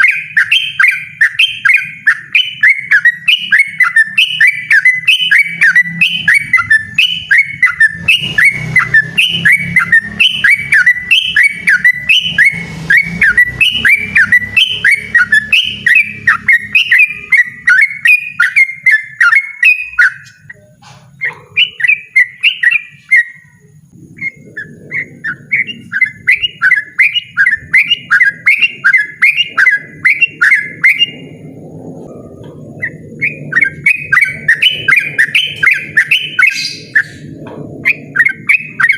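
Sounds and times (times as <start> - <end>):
bird singing bubbling notes: 0.0 - 38.9.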